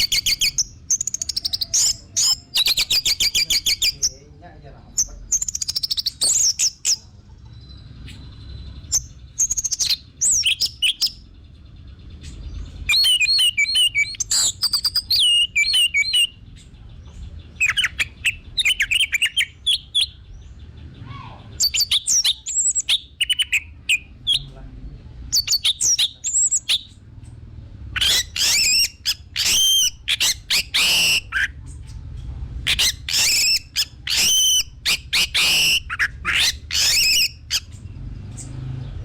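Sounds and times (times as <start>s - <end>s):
thrush singing whistled phrases: 0.0s - 4.1s, 5.4s - 7.0s, 8.8s - 11.2s, 12.9s - 16.4s, 17.6s - 20.2s, 21.4s - 24.5s, 25.3s - 27.0s, 28.0s - 31.6s, 32.7s - 37.7s.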